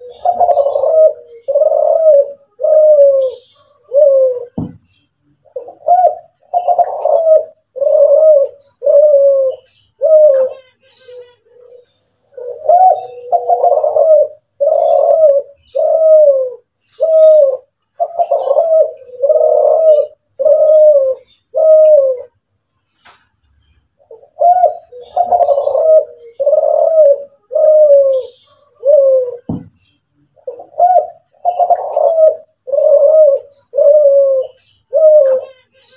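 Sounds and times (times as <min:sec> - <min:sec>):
dove cooing: 0:00.0 - 0:22.4, 0:24.0 - 0:35.9
small birds chirping: 0:00.0 - 0:35.9
low thud: 0:04.6 - 0:04.8.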